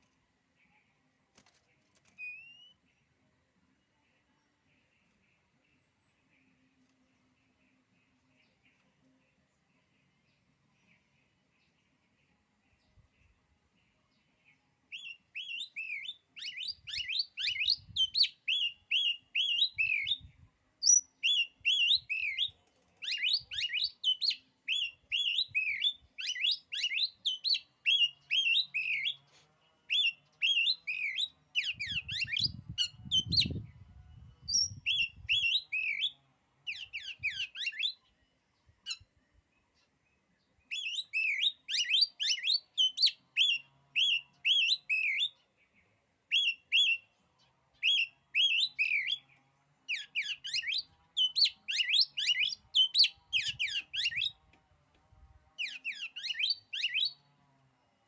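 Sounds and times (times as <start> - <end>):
bird singing whistled notes: 2.1 - 2.8, 14.9 - 29.2, 29.9 - 39.1, 40.6 - 45.4, 46.3 - 47.1, 47.8 - 54.4, 55.6 - 57.3.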